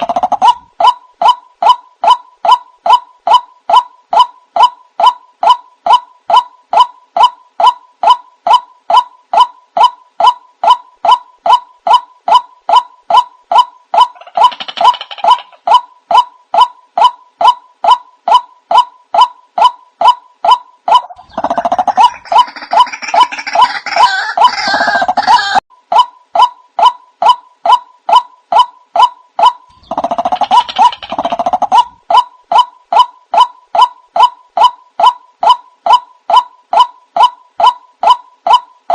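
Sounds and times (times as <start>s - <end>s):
waterhen calling: 0.0s - 3.0s, 20.9s - 25.6s.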